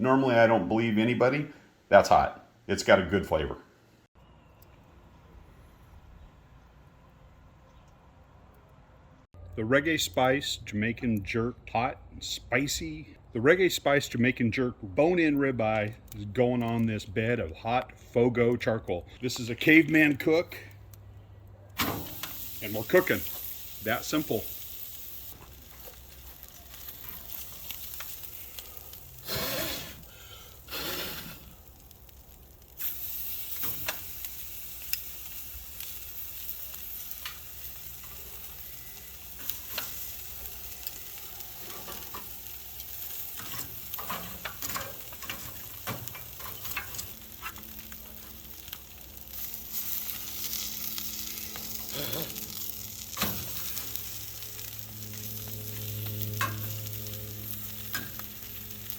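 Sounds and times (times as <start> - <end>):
coals crackling and popping: 13.2 - 58.9
steak sizzling on charcoal: 21.7 - 58.9.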